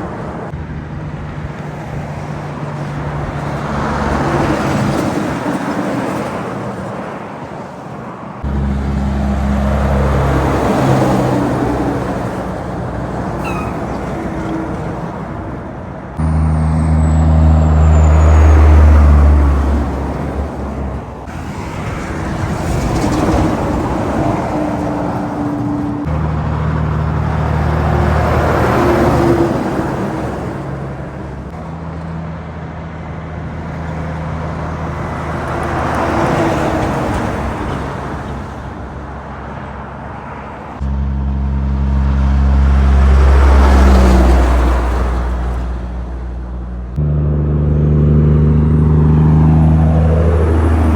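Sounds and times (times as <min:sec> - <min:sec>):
highway traffic passing: 0:00.0 - 0:50.9
low engine drone: 0:08.4 - 0:22.0, 0:40.7 - 0:50.9.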